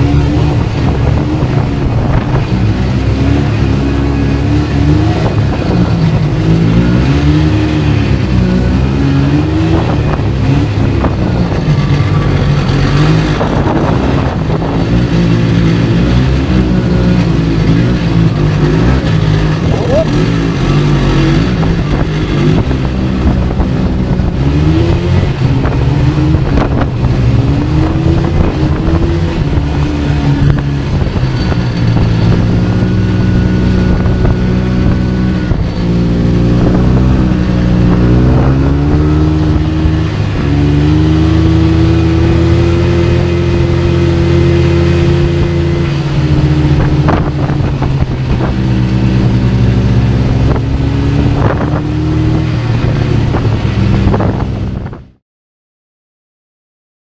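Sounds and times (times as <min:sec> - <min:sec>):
vehicle engine running: 0:00.0 - 0:55.2.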